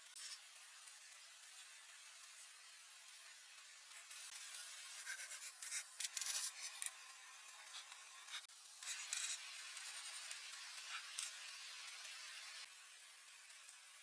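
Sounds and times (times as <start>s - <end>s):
steady hiss: 0.0s - 14.0s
scratchy rubbing: 4.9s - 6.9s.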